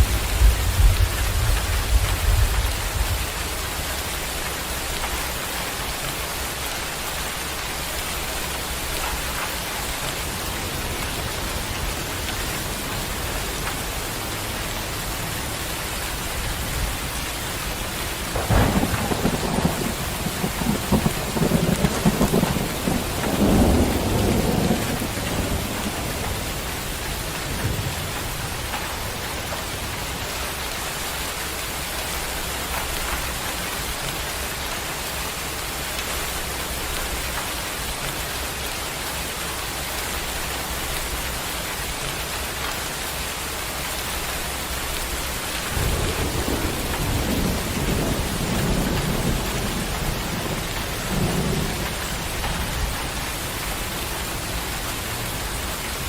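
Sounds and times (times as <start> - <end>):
thunder rumble: 0.0 - 4.9, 8.1 - 30.3, 44.9 - 56.0
steady rain: 0.0 - 56.0.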